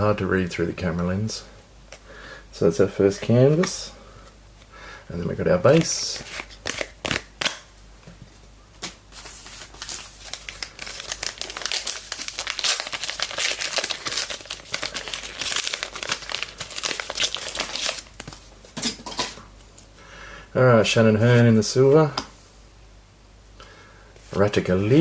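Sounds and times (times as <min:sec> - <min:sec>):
wrapper crinkling: 0:09.1 - 0:18.5.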